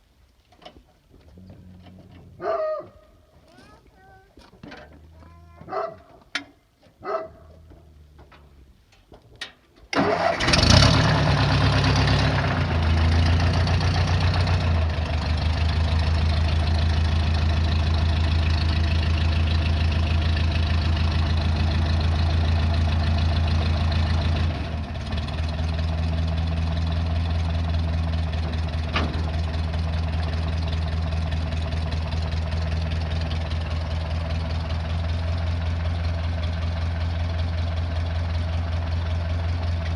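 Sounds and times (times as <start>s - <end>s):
tractor engine starting: 9.8s - 39.9s.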